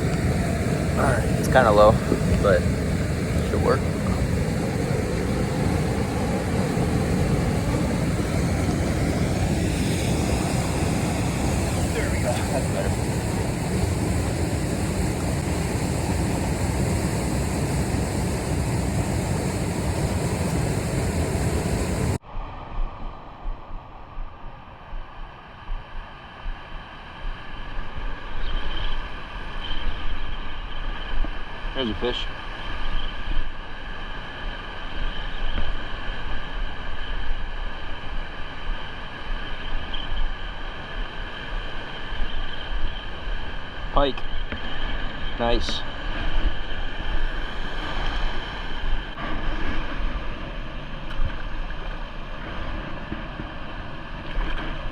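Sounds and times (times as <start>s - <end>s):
water roaring over a dam: 0.0s - 22.2s, 44.9s - 54.9s
wind buffeting microphone: 0.0s - 31.6s.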